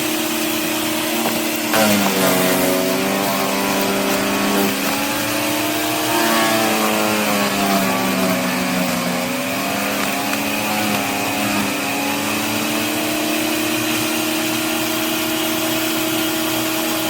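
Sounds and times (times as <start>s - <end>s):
electric wood chipper shredding branches: 0.0s - 17.0s.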